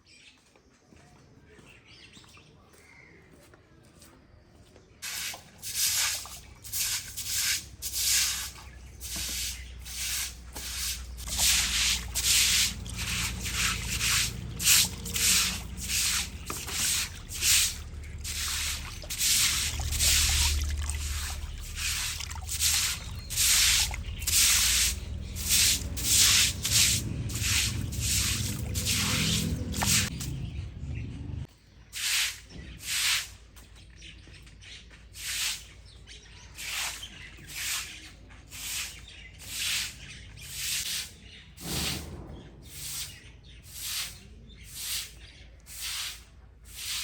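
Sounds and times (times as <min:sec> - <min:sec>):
rubbing strokes: 0:05.0 - 0:30.1.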